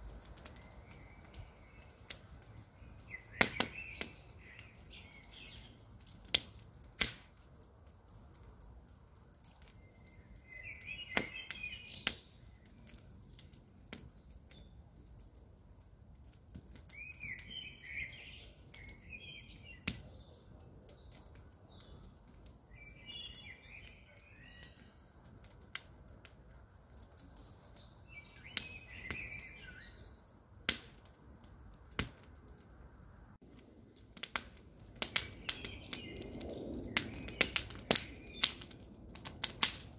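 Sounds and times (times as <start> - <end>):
campfire crackling: 0.0 - 39.9
birds chirping: 0.4 - 5.8, 9.6 - 14.8, 16.9 - 25.6, 26.9 - 30.5, 35.0 - 38.8.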